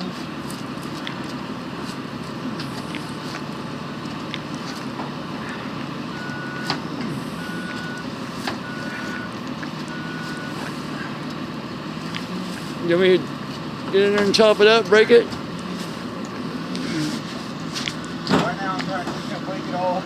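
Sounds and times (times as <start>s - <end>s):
truck engine running: 0.0s - 20.0s
reversing alarm beeps: 6.1s - 10.7s.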